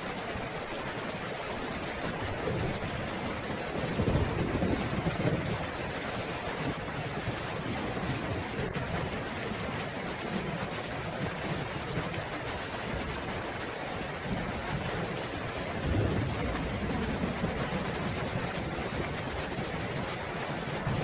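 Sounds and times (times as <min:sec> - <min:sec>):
steady rain falling: 0:00.0 - 0:21.0
distant thunder rumble: 0:02.3 - 0:05.8, 0:14.2 - 0:20.2.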